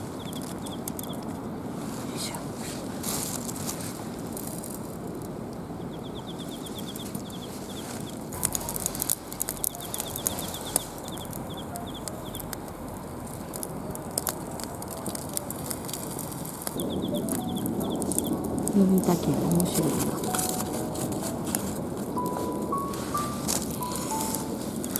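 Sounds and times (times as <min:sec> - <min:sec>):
steady background noise: 0:00.0 - 0:24.9.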